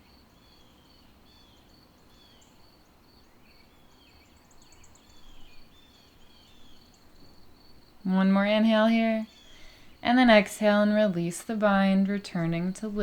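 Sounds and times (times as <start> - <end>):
low hiss: 0.0 - 13.0
birds chirping: 3.3 - 13.0.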